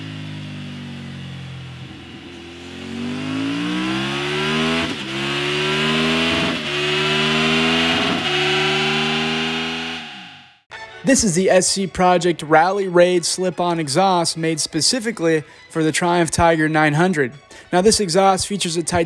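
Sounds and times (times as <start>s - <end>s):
motorcycle engine accelerating: 0.0s - 10.7s.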